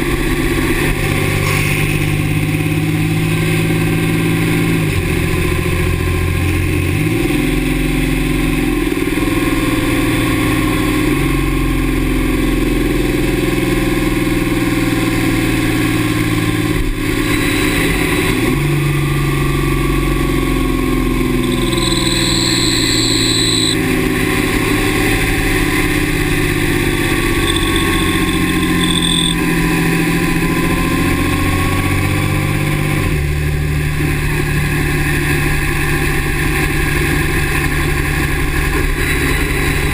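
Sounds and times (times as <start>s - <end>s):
short high squeal: 21.4s - 23.8s, 26.6s - 29.5s.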